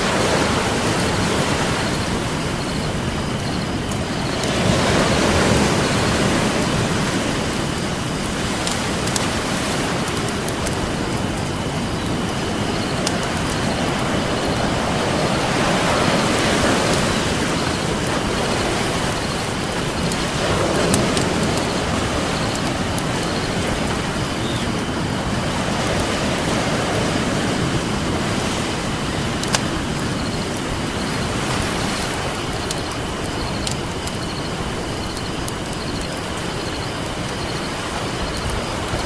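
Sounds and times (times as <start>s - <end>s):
ocean surf washing in: 0.0s - 39.0s
campfire wood popping and crackling: 16.2s - 24.7s.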